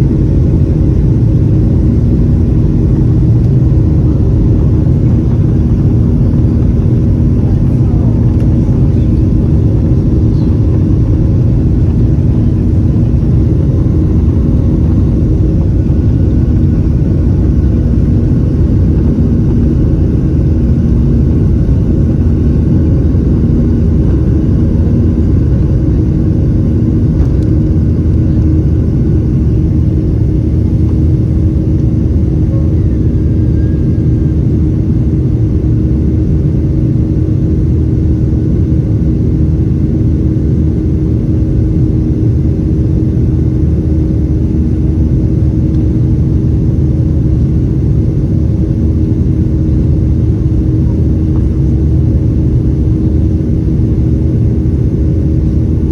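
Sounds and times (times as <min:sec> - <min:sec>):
faint hum tones: 0:00.0 - 0:55.9
jet engines rumbling: 0:00.0 - 0:55.9.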